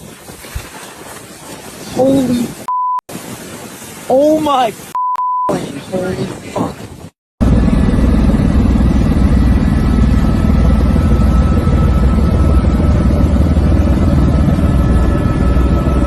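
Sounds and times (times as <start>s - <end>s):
loud low rumble: 7.4s - 16.0s.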